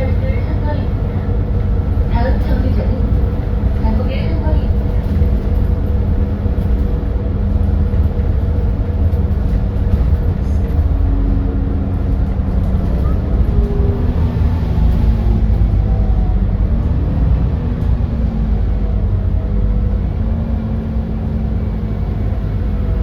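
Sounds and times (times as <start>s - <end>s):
bus engine low rumble: 0.0s - 23.0s.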